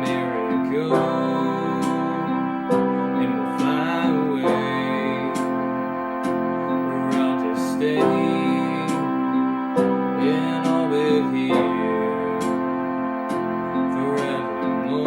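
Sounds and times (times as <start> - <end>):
sustained synth chords: 0.0 - 15.0
wavering keyboard melody: 0.0 - 15.0
percussion beat: 0.1 - 9.2, 10.6 - 11.1, 11.7 - 12.7, 13.3 - 14.4.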